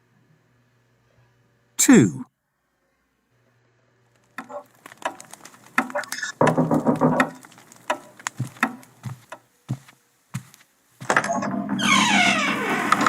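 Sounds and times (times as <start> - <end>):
rustling and shuffling: 4.2 - 11.3
irregular knocks and taps: 4.4 - 11.2.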